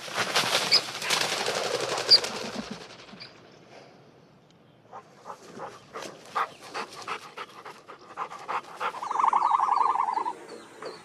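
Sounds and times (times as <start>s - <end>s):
animal calling: 4.9s - 11.0s.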